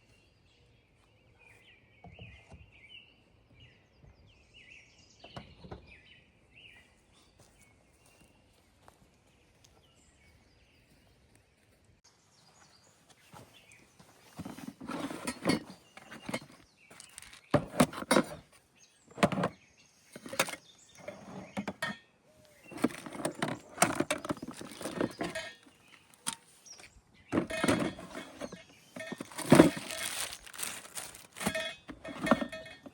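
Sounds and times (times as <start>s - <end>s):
things being handled: 14.3s - 18.5s, 19.1s - 22.0s, 22.6s - 32.9s.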